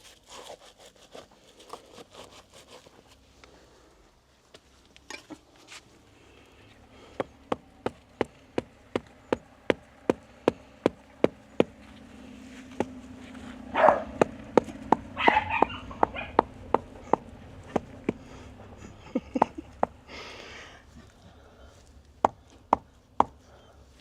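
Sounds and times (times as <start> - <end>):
low steady hum: 3.2 - 24.0
sharp evenly spaced taps: 7.2 - 11.8, 12.8 - 13.0, 14.1 - 18.2, 19.2 - 20.0, 22.2 - 23.4.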